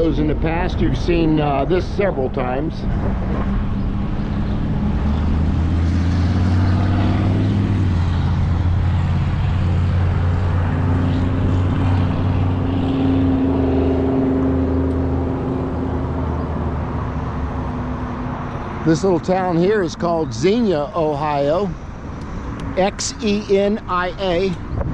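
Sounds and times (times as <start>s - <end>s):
rushing riding noise: 18.6s - 24.9s.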